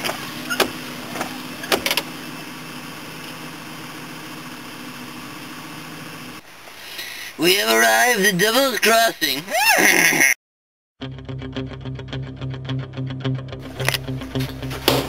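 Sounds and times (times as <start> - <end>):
car engine running: 0.0 - 8.0, 13.6 - 15.0.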